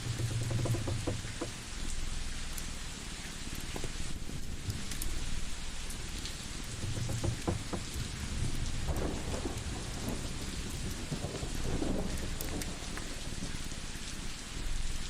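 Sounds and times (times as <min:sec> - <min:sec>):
rain-like hiss: 0:00.0 - 0:15.0
wood fire crackling: 0:00.0 - 0:15.0.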